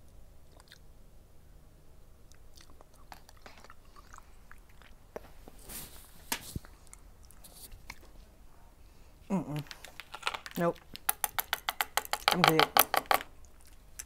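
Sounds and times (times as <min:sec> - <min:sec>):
person chewing noodles: 0:00.4 - 0:00.8, 0:02.2 - 0:05.2
wet mouth clicks and smacks: 0:00.4 - 0:00.8, 0:02.2 - 0:05.0.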